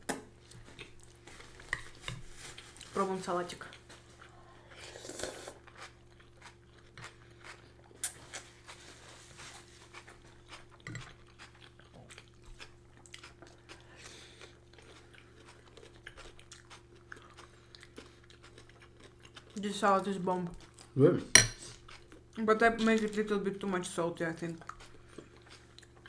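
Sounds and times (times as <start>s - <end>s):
chewing and crunching salad: 0.4s - 26.0s.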